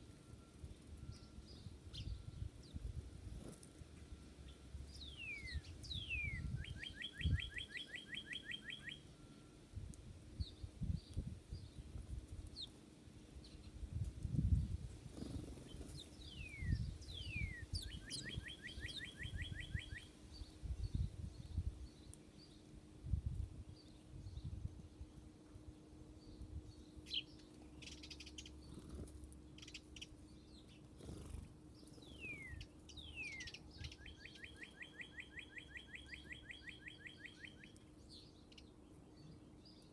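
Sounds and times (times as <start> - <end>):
songbird whistles and trill: 0.1 - 9.6, 15.2 - 22.6, 31.8 - 39.9.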